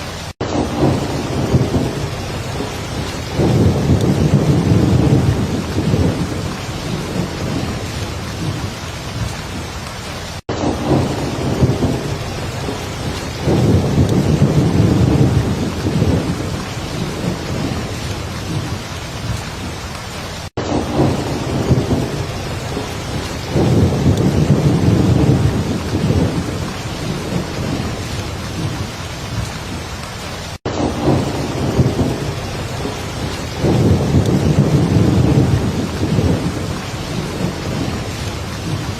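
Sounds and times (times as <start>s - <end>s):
thunder rolling: 0.0s - 9.6s, 10.5s - 19.6s, 20.6s - 29.6s, 30.6s - 38.9s
heavy rain falling: 0.0s - 38.9s.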